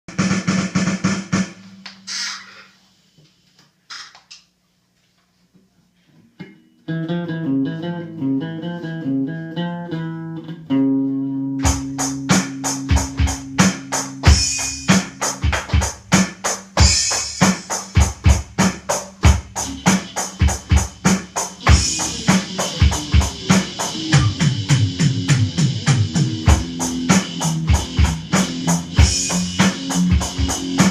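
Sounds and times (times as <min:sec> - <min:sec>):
drum kit beat: 0:00.1 - 0:02.7, 0:11.6 - 0:30.9
electric guitar playing: 0:06.4 - 0:15.5, 0:19.5 - 0:30.9.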